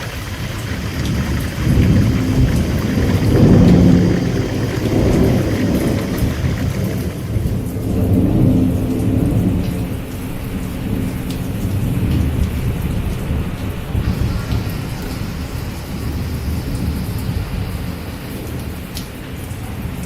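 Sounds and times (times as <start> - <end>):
rolling thunder: 0.0 - 9.8
steady rain: 0.0 - 20.0.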